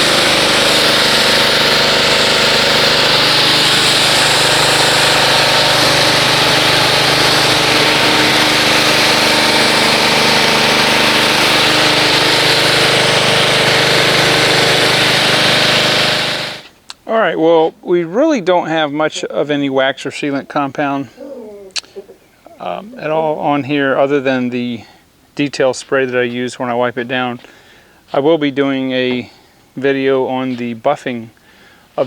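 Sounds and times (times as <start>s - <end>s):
water jet hissing: 0.0s - 16.7s
pressure washer motor humming: 0.0s - 16.8s.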